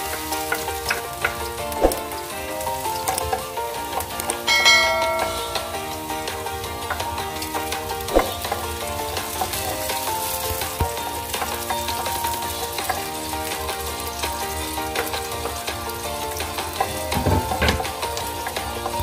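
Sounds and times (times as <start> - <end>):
background music: 0.0 - 19.0
onion sizzling in oil: 0.0 - 19.0
wooden spatula scraping a pan: 5.4 - 19.0.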